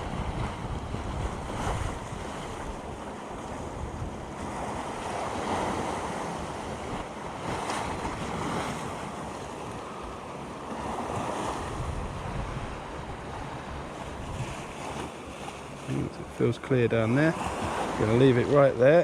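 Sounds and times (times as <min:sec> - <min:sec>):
wind buffeting microphone: 0:00.0 - 0:10.2, 0:10.8 - 0:15.2
sea waves washing against rocks: 0:00.0 - 0:19.0.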